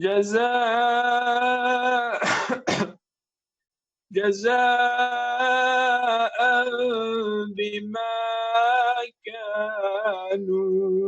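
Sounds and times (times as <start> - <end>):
man coughing: 2.1 - 3.0
man chanting: 4.2 - 11.0.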